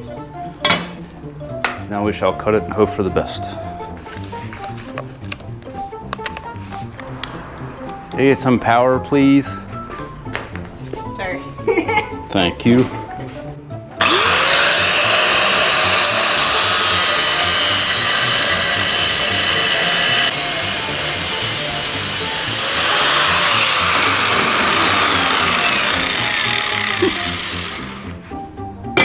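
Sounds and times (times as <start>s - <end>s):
power tool cutting steel pipe: 14.0s - 28.2s.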